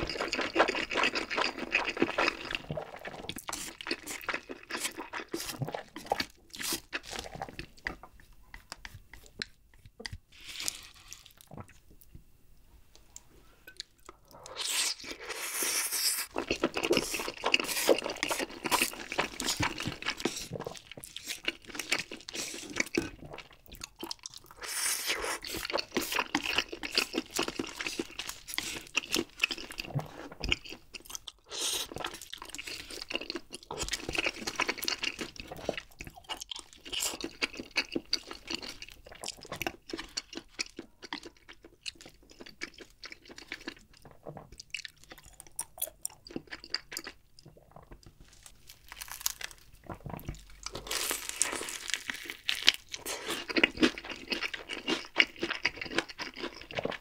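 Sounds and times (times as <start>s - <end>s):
wet chewing of noodles: 0.0s - 11.9s, 13.8s - 57.0s
crunchy bites of fried chicken: 48.2s - 57.0s.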